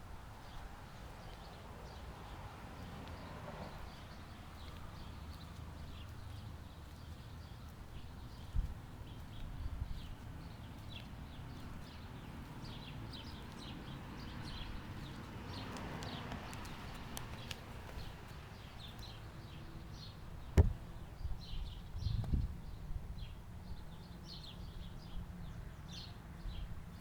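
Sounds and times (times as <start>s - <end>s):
small birds chirping: 0.4s - 27.0s
sharp knock: 20.6s - 20.8s.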